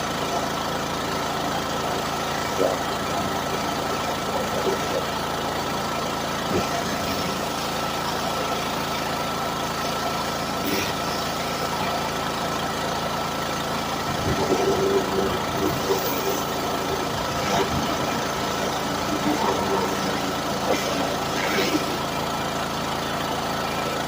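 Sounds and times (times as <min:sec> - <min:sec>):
pressure washer motor hum: 0:00.0 - 0:24.0.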